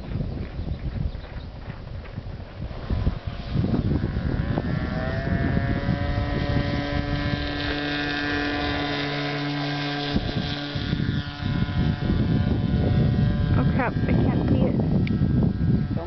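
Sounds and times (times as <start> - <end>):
model jet motor whining: 0.0 - 16.0
wind buffeting microphone: 0.0 - 16.0.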